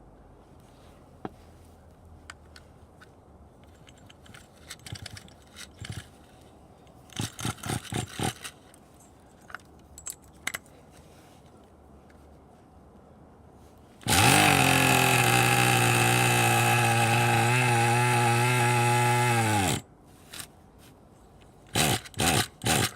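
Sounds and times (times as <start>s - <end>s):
gear clicking and clinking: 2.4s - 10.7s.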